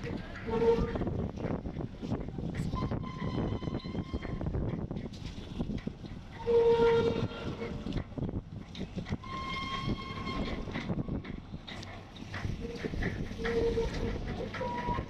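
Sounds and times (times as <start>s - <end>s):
steady rumble: 0.0s - 15.0s.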